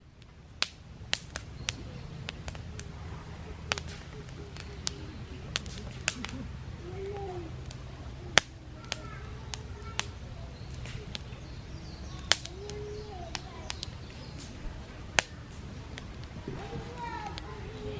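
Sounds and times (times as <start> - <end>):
low steady rumble: 0.0 - 17.9
wood fire crackling and popping: 0.0 - 17.9.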